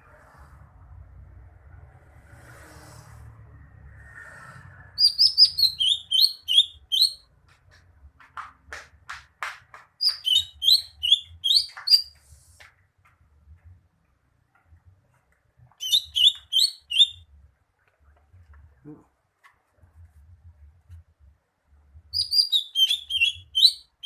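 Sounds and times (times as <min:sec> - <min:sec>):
bird singing whistled notes: 0:05.0 - 0:07.3, 0:10.0 - 0:12.1, 0:15.8 - 0:17.2, 0:22.1 - 0:24.0.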